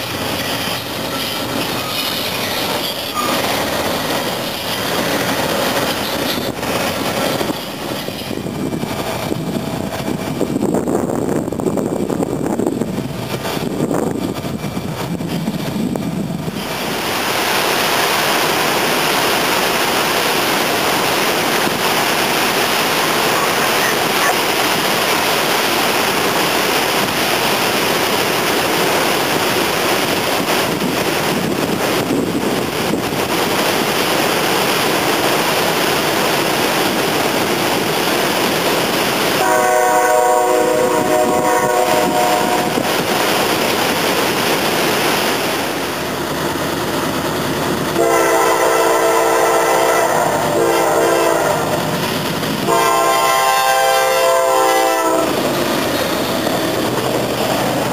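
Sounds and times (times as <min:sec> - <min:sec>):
freight train rolling past: 0:00.0 - 0:57.9
waterfall rushing: 0:16.6 - 0:29.4.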